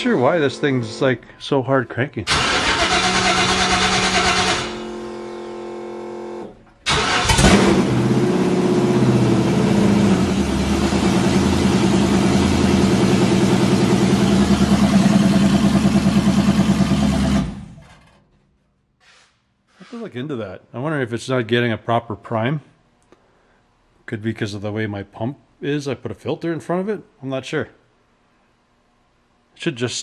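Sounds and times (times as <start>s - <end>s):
loud engine running: 2.3s - 18.0s
starter motor whine: 2.3s - 18.2s.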